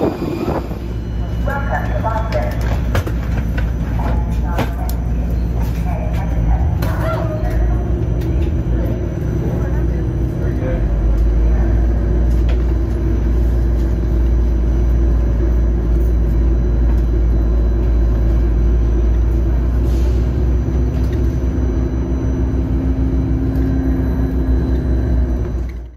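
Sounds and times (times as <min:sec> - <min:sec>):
airplane taxiing rumble: 0:00.0 - 0:25.9
low hum: 0:00.0 - 0:25.9.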